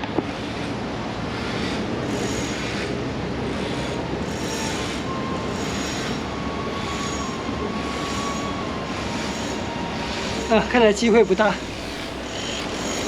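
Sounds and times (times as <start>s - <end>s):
faint thin whine: 3.6s - 13.0s.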